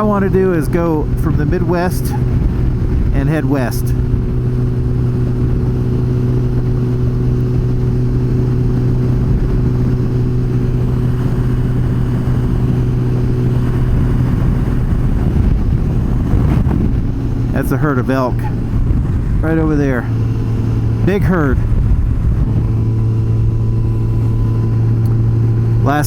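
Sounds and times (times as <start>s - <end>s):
motorcycle engine cruising: 0.0s - 26.0s
road rumble: 0.0s - 26.0s
wind: 0.0s - 26.0s.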